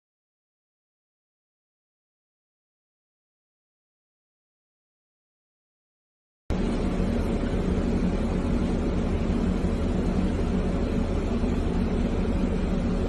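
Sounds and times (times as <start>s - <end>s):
car engine and road noise: 6.5s - 13.0s
low steady hum: 6.5s - 13.0s.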